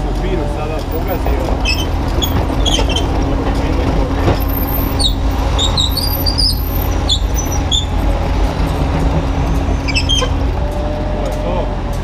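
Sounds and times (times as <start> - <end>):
excavator diesel engine running: 0.0 - 12.0
short high squeaks: 1.6 - 3.1, 4.4 - 8.1, 9.5 - 10.5.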